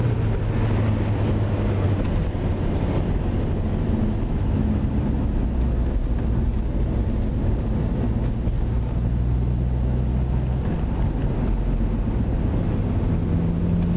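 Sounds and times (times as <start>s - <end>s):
car engine exhaust drone: 0.0s - 13.9s.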